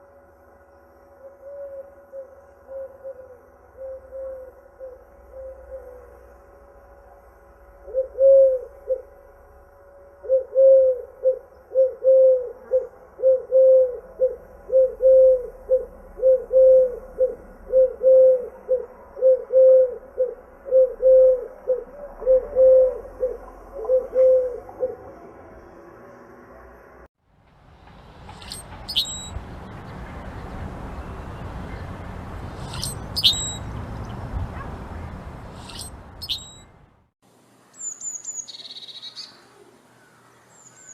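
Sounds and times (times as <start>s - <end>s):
bird calling low repeated notes: 1.2s - 6.3s, 7.0s - 26.1s, 28.3s - 29.4s, 35.6s - 36.8s.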